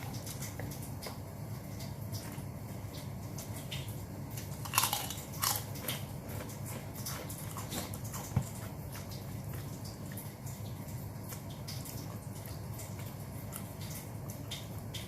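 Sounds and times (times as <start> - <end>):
biting and chewing chicken: 0.0 - 15.0
crunchy bites: 4.6 - 8.2.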